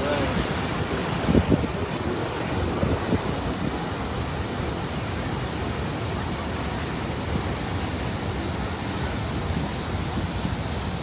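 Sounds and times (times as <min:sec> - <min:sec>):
water rushing over falls: 0:00.0 - 0:11.0.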